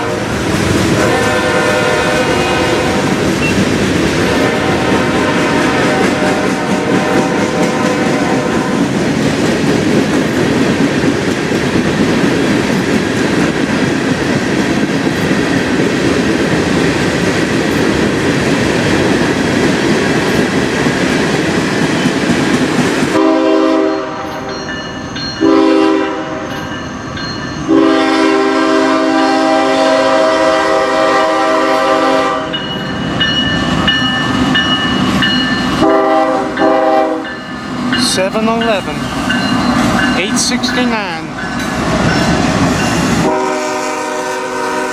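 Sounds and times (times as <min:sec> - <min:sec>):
locomotive air horn blasts: 0:00.0 - 0:00.3, 0:00.9 - 0:03.6, 0:04.3 - 0:08.9, 0:23.2 - 0:24.2, 0:25.4 - 0:26.4, 0:27.7 - 0:32.6, 0:35.8 - 0:37.3, 0:43.2 - 0:44.9
train wheels rumbling on rail: 0:00.0 - 0:44.9.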